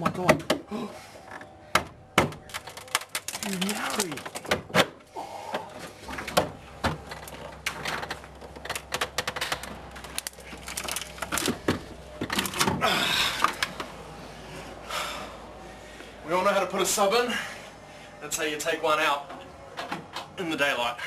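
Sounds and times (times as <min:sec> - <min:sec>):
fibreglass enclosure cracking apart: 0:02.3 - 0:05.0, 0:08.6 - 0:11.7.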